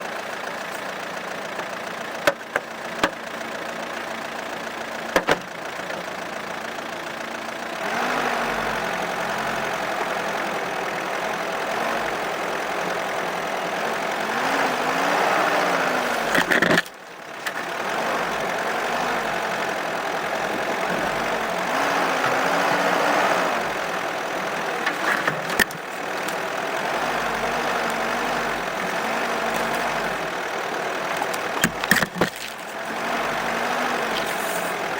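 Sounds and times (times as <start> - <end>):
car engine revving while driving: 7.8 - 34.9.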